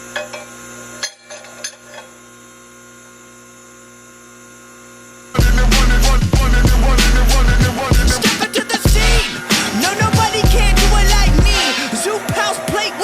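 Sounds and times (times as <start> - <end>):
forging press motor hum: 0.0 - 13.0.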